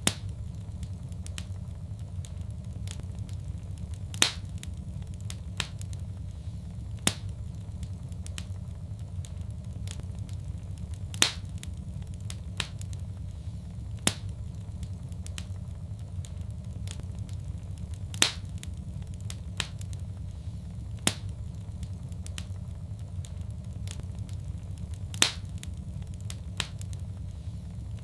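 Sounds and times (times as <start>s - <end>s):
fire crackling and popping: 0.0s - 28.0s
low rumble of flames: 0.0s - 28.0s.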